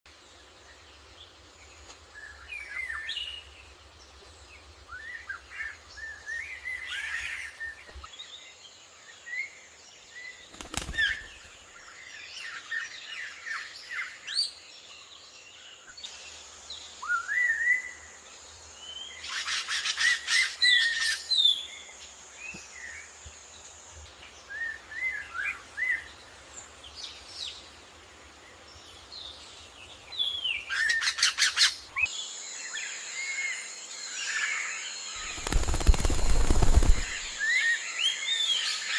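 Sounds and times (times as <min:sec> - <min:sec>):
small bird chirping: 0:35.1 - 0:38.7.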